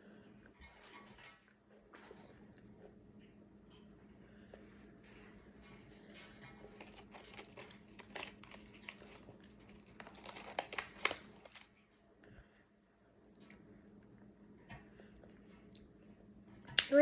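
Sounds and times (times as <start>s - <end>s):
plastic wrapper crinkling: 6.8s - 11.8s.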